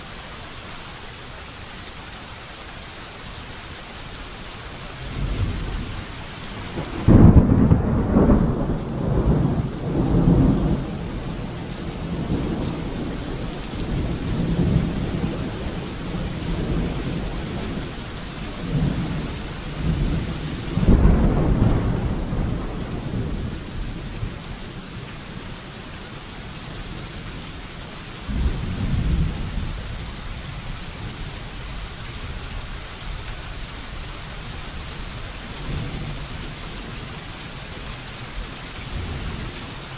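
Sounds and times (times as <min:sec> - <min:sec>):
steady rain: 0:00.0 - 0:39.9
rolling thunder: 0:05.0 - 0:24.5, 0:28.3 - 0:31.3.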